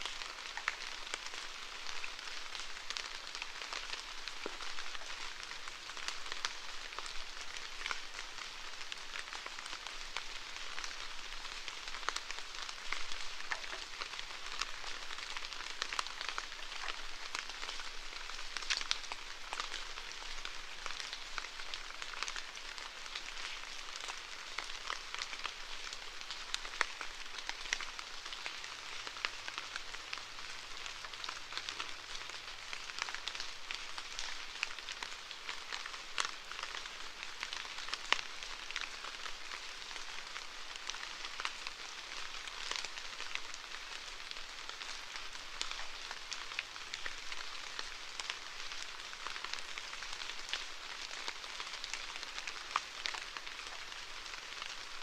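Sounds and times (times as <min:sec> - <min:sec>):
raindrop ticks: 0:11.6 - 0:30.2.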